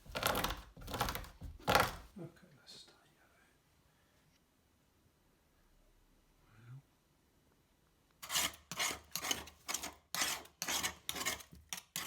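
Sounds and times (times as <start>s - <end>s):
hand rasping along sealant joint: 8.2s - 12.0s.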